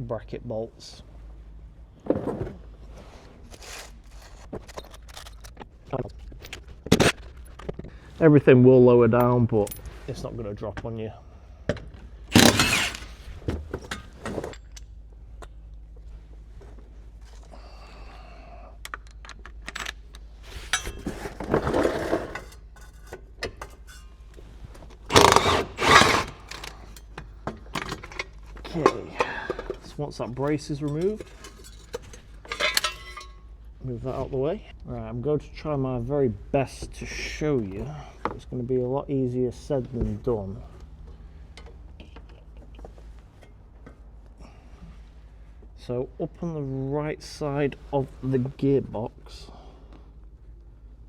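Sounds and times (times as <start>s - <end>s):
metal scrape: 3.0s - 5.6s, 12.3s - 13.4s, 20.4s - 24.2s, 25.1s - 27.1s, 31.0s - 33.4s
hand tools clicking on bolts: 12.3s - 13.3s, 25.1s - 28.4s, 30.9s - 33.4s
loud short tool bursts: 12.3s - 13.4s, 25.1s - 27.0s.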